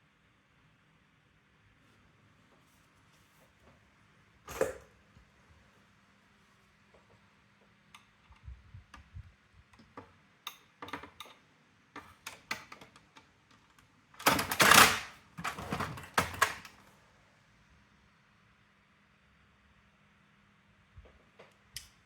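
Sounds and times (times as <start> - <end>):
typewriter parts clattering: 14.2 - 16.8
typewriter parts clicking: 14.2 - 16.8.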